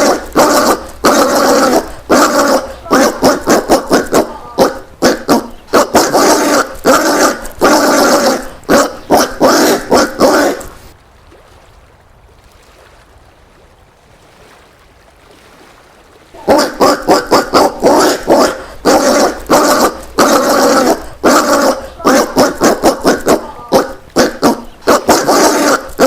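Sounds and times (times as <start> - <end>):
peccary calling: 0.0 - 11.0, 16.4 - 26.0.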